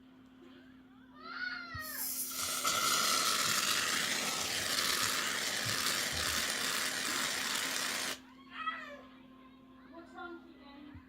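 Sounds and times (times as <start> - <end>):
aerosol can spraying foam: 1.9 - 8.2.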